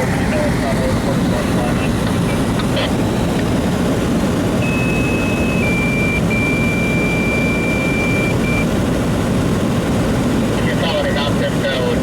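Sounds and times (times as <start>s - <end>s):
two-tone radio page tones: 4.6s - 8.7s.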